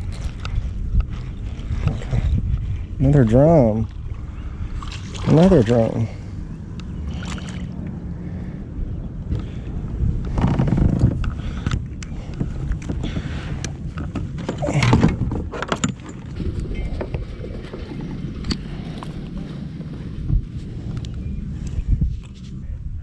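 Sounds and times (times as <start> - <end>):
water sloshing: 3.6 - 6.4, 7.0 - 7.8.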